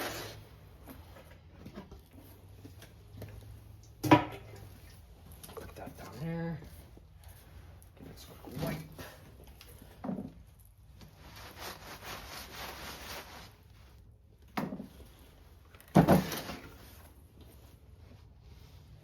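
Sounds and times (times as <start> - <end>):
rag rubbing and wiping: 11.1 - 14.0.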